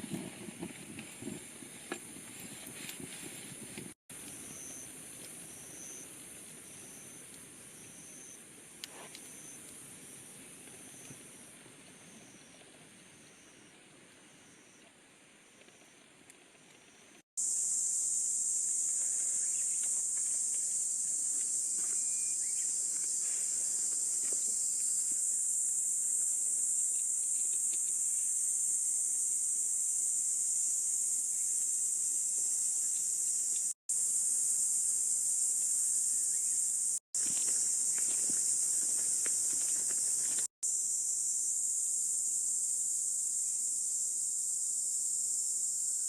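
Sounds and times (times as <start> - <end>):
insects shrill drone: 17.4 - 46.0.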